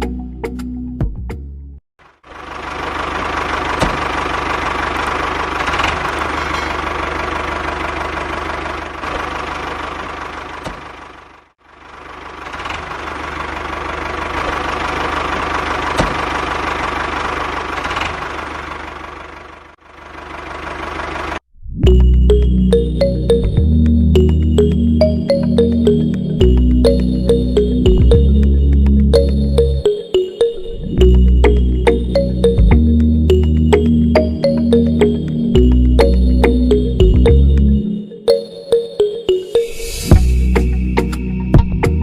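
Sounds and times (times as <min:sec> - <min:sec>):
small motor running with knocking rattle: 0:02.3 - 0:11.4.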